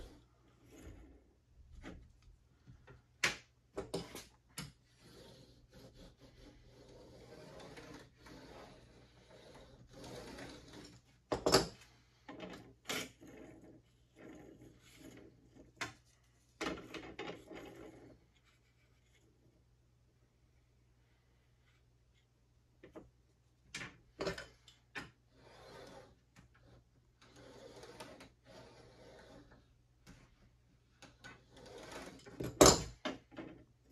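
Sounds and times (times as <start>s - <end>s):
light rubbing or scraping: 0.0s - 2.1s, 4.8s - 11.2s, 11.9s - 19.7s, 25.1s - 30.5s, 31.1s - 32.4s.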